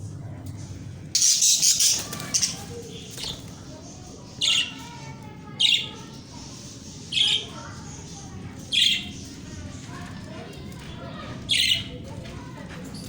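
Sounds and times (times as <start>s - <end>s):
budgerigars chirping and squawking: 1.2s - 9.5s.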